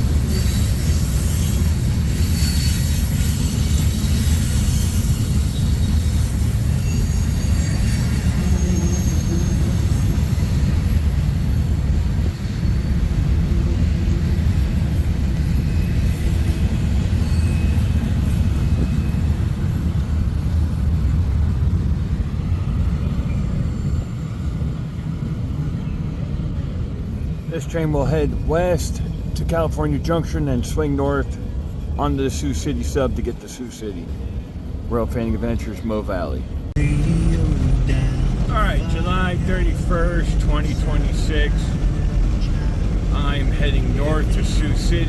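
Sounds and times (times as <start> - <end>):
train cars rumbling past: 0.0 - 45.0
faint wheel squeal: 0.1 - 20.1.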